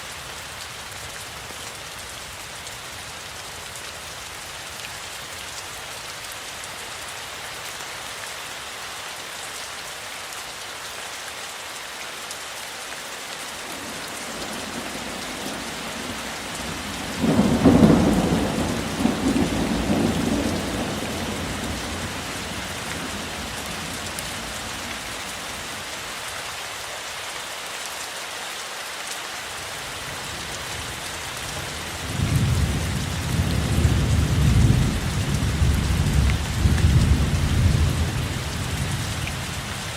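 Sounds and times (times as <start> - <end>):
steady rainfall: 0.0 - 39.9
thunder rumbling: 14.3 - 24.5.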